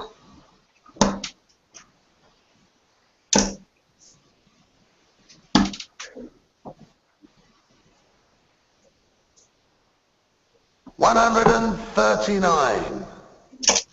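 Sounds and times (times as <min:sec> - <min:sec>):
darts striking dartboard: 0:01.0 - 0:01.4, 0:03.3 - 0:03.6, 0:05.6 - 0:05.8, 0:11.3 - 0:11.7.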